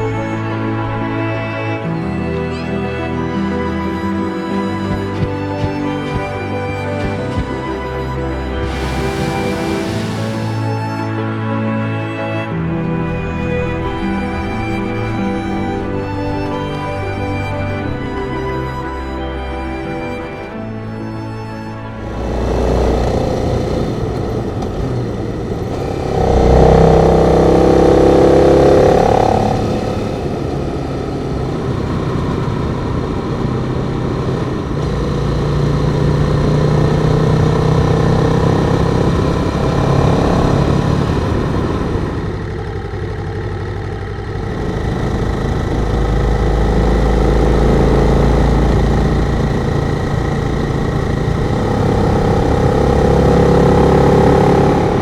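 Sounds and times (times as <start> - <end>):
motorcycle engine running: 3.9 - 11.0, 22.0 - 55.0.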